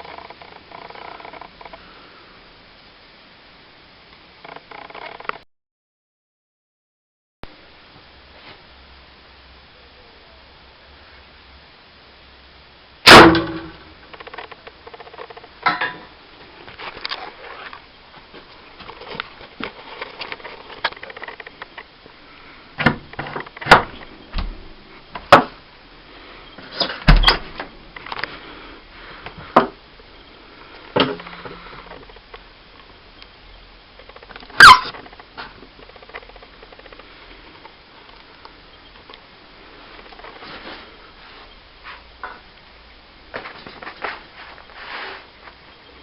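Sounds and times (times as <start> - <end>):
short falling squeak: 34.6 - 35.0.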